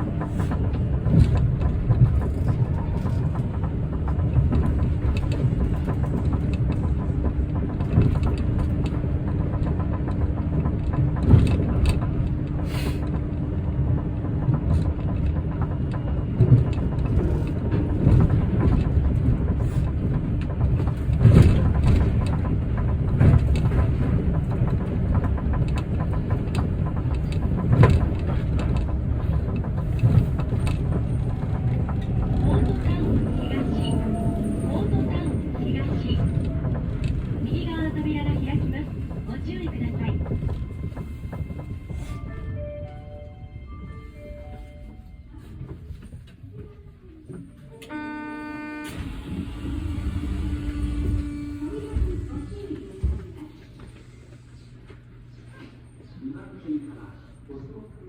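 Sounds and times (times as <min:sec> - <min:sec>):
clunks and knocks: 0:00.0 - 0:42.0
train interior running noise: 0:00.0 - 0:58.0.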